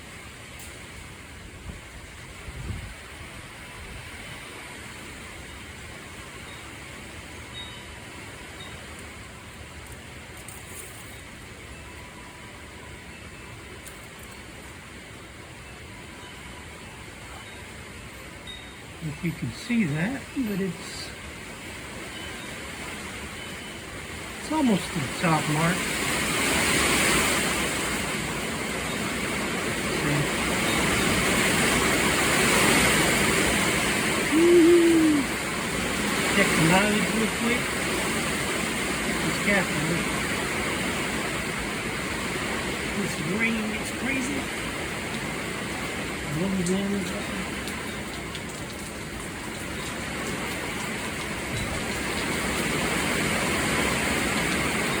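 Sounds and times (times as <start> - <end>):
wind: 0.0 - 55.0
heavy rain hissing: 14.4 - 55.0.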